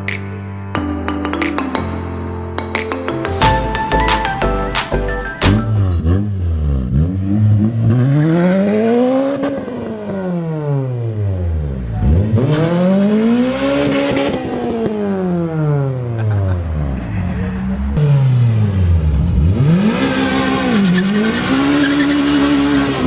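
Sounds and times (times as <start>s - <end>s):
car engine revving: 5.8s - 23.0s.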